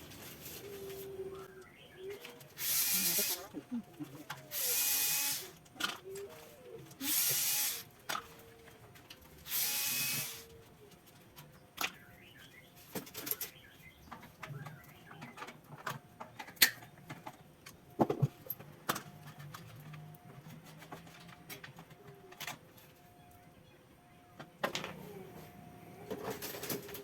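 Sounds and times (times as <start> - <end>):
power tool whirring: 2.6 - 3.5, 4.5 - 5.6, 7.0 - 7.9, 9.4 - 10.5.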